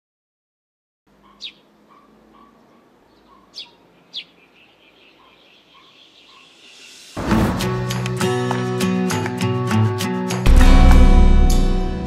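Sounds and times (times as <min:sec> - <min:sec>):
soft bird calls: 0:01.1 - 0:07.0.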